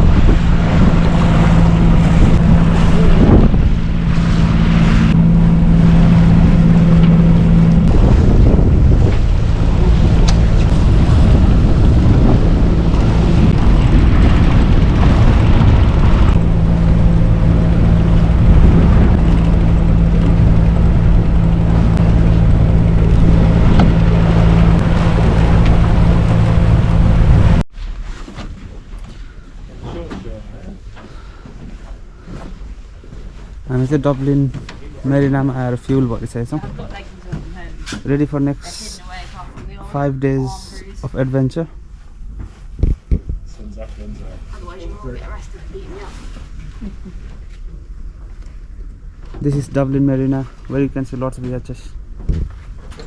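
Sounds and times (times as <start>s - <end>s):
rush of wind and water: 0.0s - 27.6s
boat engine droning: 0.0s - 27.7s.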